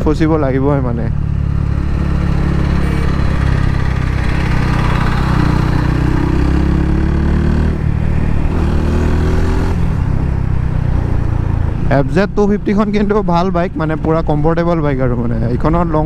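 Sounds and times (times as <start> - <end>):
motorcycle engine running: 1.1 - 8.9.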